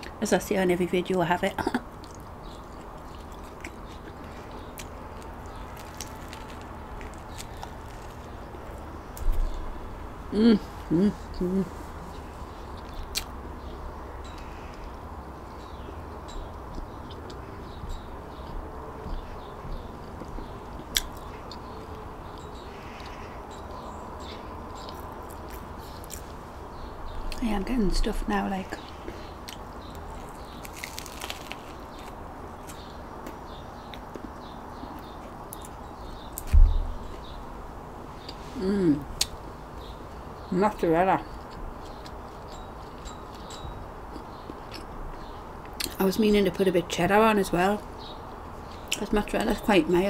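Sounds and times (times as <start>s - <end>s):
steady low background noise: 0.0s - 50.0s
steady low hum: 0.0s - 50.0s
person chewing bread: 1.9s - 9.7s, 10.7s - 13.6s, 22.8s - 26.4s, 28.9s - 35.8s, 41.3s - 46.0s
crunching bread: 2.0s - 9.7s, 29.4s - 34.4s.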